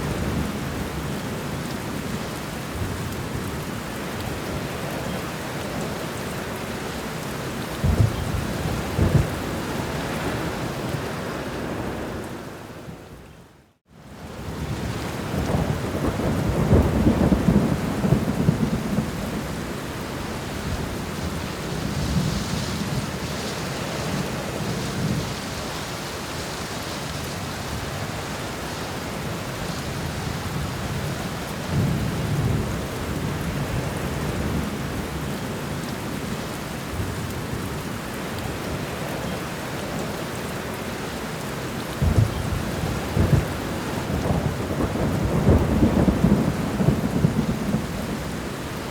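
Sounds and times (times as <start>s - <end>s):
steady rain: 0.0s - 48.9s
thunder rumbling: 7.8s - 10.7s, 15.3s - 19.6s, 42.0s - 48.8s.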